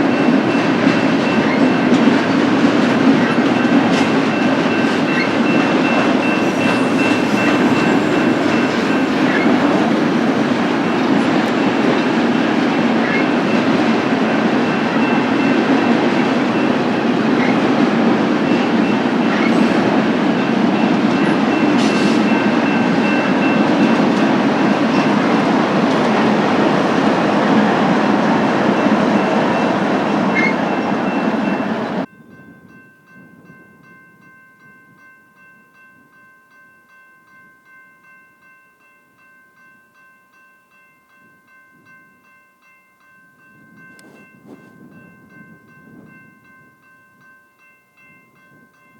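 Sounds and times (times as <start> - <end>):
freight train wheels rumbling on rails: 0.0 - 34.2, 43.6 - 46.8.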